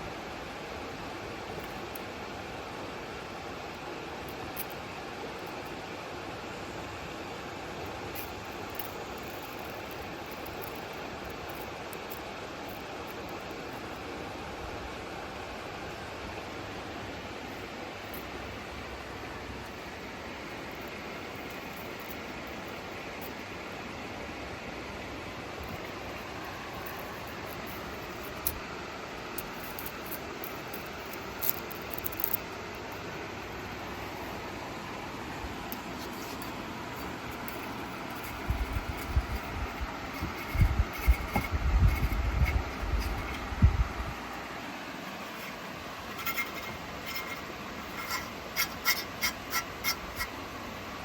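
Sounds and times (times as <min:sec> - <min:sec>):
steady background hiss: 0:00.0 - 0:51.0
sharp scratchy strokes: 0:35.8 - 0:44.0, 0:45.0 - 0:50.4
tree branch rustling and scraping: 0:35.8 - 0:50.4.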